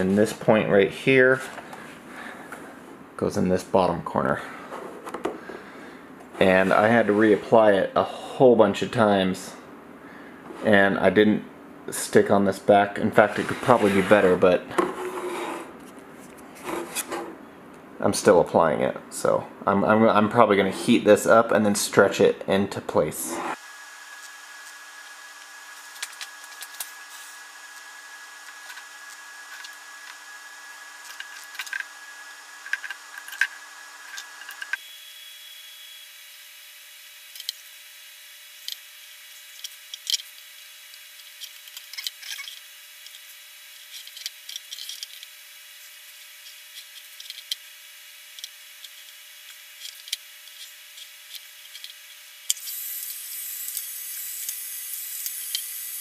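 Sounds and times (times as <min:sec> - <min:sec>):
hot-air blower whine: 0:04.0 - 0:08.8, 0:12.9 - 0:17.9, 0:22.9 - 0:41.3.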